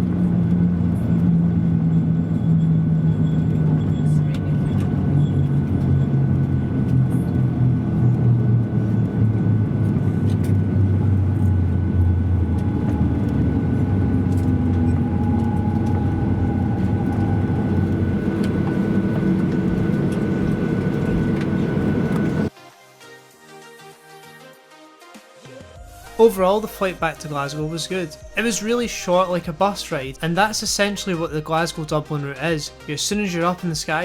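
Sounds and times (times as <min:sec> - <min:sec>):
airliner cabin engine hum: 0:00.0 - 0:22.5
faint steady engine whines: 0:00.0 - 0:22.5.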